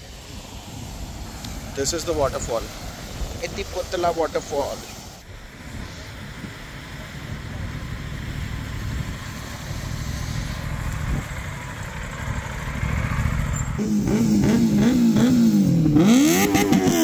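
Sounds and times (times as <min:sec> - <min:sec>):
motorcycle engines rumbling: 0:00.0 - 0:17.0
motorcycle engine revving: 0:07.9 - 0:17.0.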